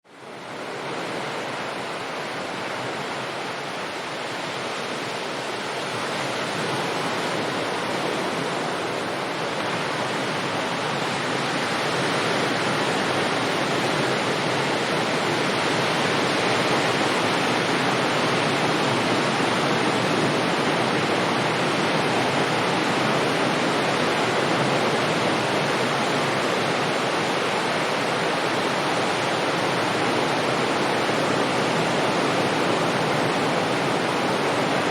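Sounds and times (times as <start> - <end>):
distant sea waves on shore: 0.1 - 34.9.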